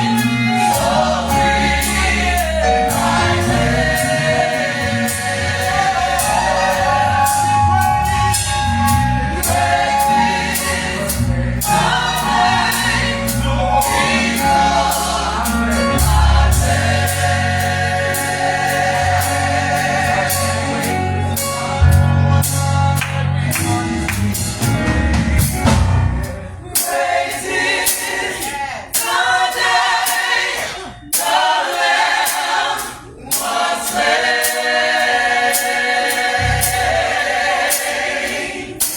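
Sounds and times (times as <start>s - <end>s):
bass: 0.0s - 26.7s, 36.4s - 37.2s
gospel choir singing: 0.0s - 38.9s
drums: 23.5s - 27.0s.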